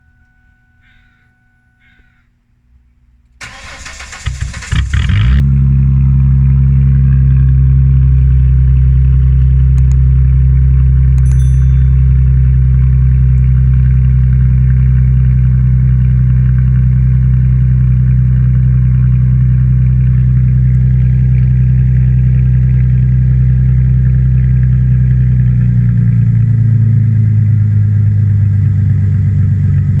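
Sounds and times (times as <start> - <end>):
car engine idling loudly: 3.4 - 11.2, 11.8 - 30.0.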